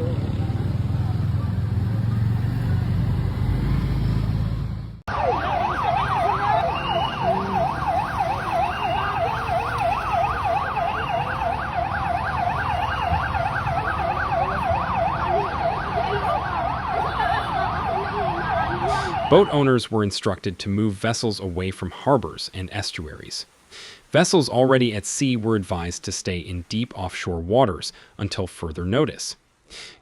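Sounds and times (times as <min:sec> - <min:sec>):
traffic and engine rumble: 0:00.0 - 0:19.6
slower siren rising and falling: 0:01.7 - 0:19.6
siren in fast yelp mode: 0:05.1 - 0:19.6.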